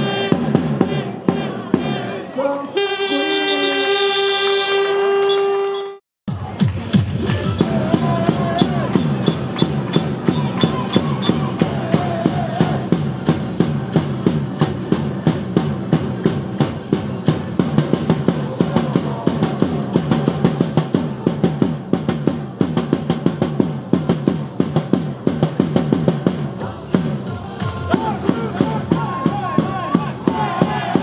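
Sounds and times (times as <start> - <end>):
fast drum beat: 0.0 - 2.0, 6.3 - 31.0
cheer song over loudspeakers: 0.0 - 13.4, 17.8 - 22.0, 26.5 - 31.0
stadium crowd noise: 0.0 - 31.0.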